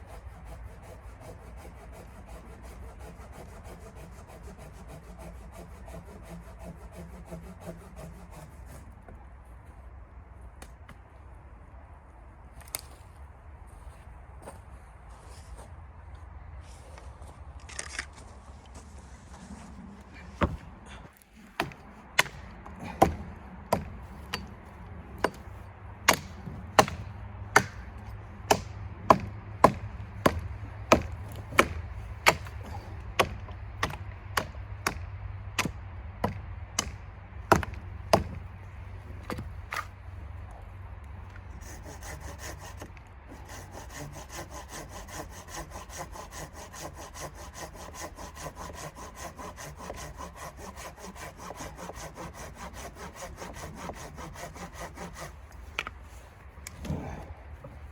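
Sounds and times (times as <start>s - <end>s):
sawing through wood: 0.0s - 9.2s, 18.8s - 57.9s
wood being chopped: 20.4s - 20.7s, 21.4s - 24.6s, 25.2s - 38.5s, 39.2s - 39.9s.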